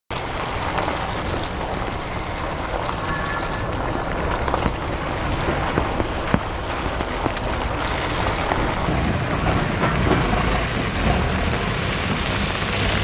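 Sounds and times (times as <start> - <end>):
rain hissing on a wet road: 0.1 - 13.0
low rumble: 8.8 - 13.0.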